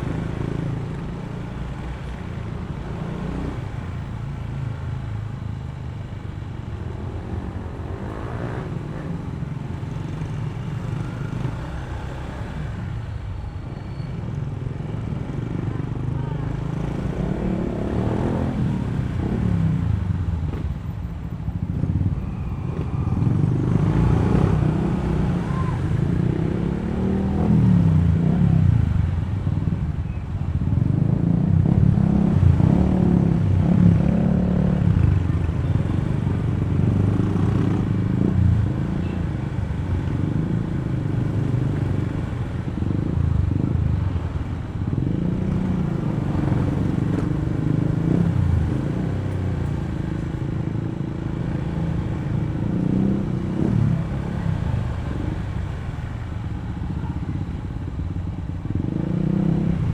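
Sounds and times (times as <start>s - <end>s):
road and tyre noise: 0.0s - 59.9s.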